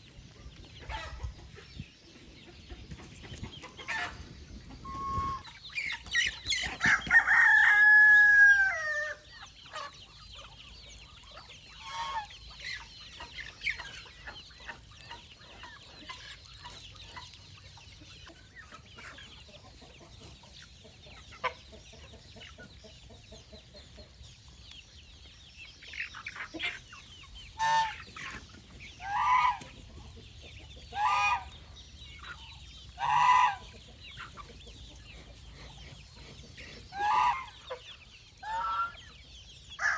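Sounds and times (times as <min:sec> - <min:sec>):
hens clucking: 0:00.0 - 0:39.9
rooster crowing: 0:07.1 - 0:09.2.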